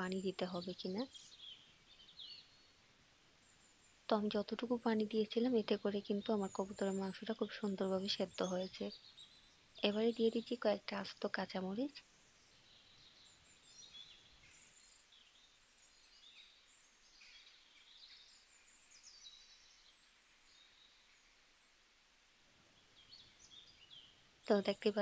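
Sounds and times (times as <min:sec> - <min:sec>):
faint bird chirps: 0:03.4 - 0:21.8.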